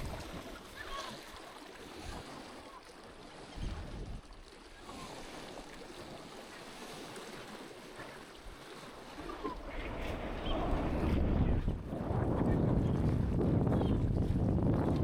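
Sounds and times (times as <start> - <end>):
wind buffeting microphone: 0.0 - 0.5, 3.5 - 4.3, 9.2 - 15.0
water lapping against boat: 0.0 - 15.0.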